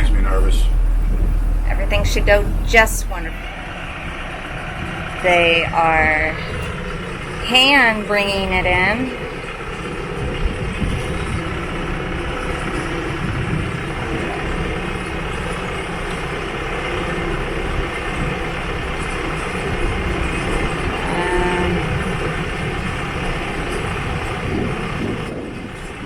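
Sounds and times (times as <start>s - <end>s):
short wavering tone: 0.0s - 4.4s
low engine rumble: 0.0s - 26.0s.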